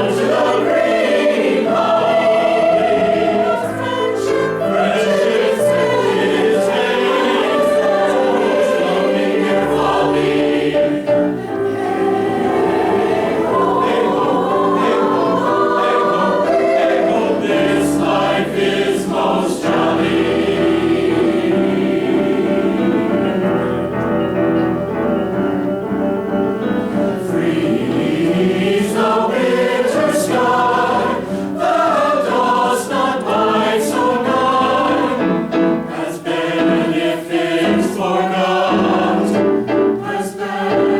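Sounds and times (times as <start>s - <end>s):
choir singing: 0.0s - 40.9s.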